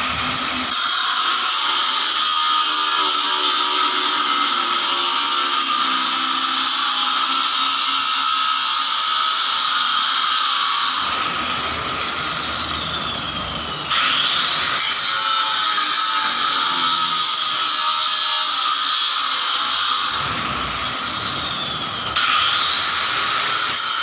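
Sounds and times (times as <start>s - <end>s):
power tool motor whining: 10.9s - 23.8s.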